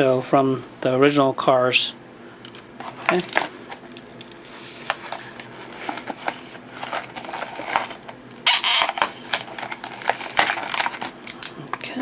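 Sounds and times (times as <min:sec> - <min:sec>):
packaging rustling: 0:04.8 - 0:11.6
blister packaging crackling: 0:06.8 - 0:11.6.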